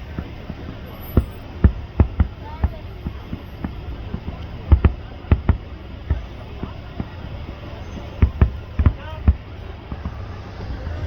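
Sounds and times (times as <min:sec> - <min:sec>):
fireworks exploding: 0:00.0 - 0:11.0.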